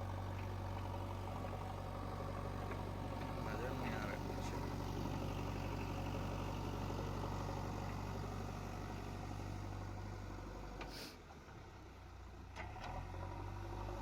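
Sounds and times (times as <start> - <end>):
diesel engine running: 0.0 - 14.0
brief hiss: 10.9 - 11.2.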